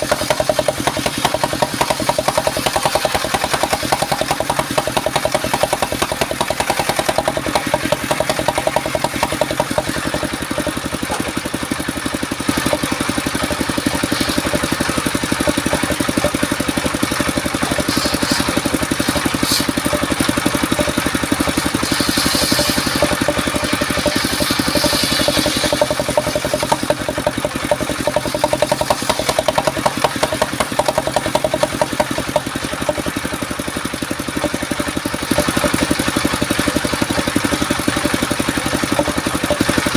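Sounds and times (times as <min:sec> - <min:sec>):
sawmill engine running: 0:00.0 - 0:39.9
short hissing bursts: 0:17.8 - 0:19.8, 0:21.7 - 0:26.0.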